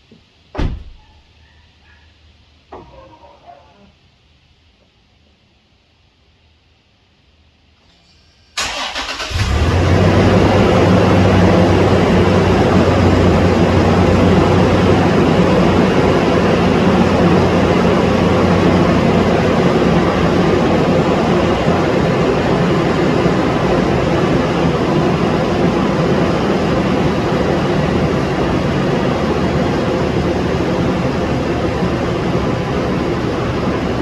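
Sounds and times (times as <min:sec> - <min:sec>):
car engine starting and idling: 0:08.5 - 0:34.0.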